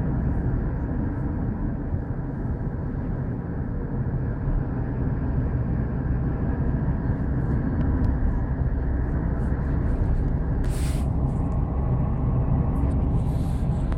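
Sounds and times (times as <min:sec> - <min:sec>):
train rumbling: 0:00.0 - 0:13.9
brief hiss: 0:10.6 - 0:11.1.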